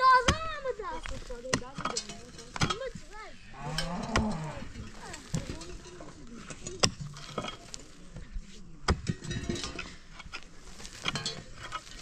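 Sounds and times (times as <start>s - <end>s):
cooking pots and utensils clinking: 0.9s - 8.2s, 8.9s - 12.0s.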